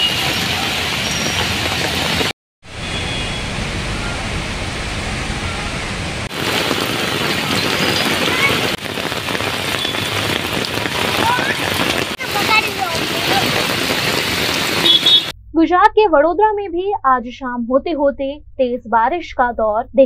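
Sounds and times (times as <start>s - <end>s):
heavy rain on street: 0.0s - 15.3s.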